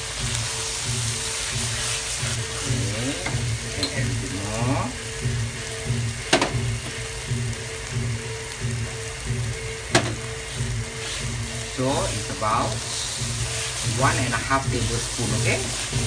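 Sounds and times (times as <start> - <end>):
spice paste sizzling in oil: 0.0 - 16.0
sharp knock: 6.3 - 6.6.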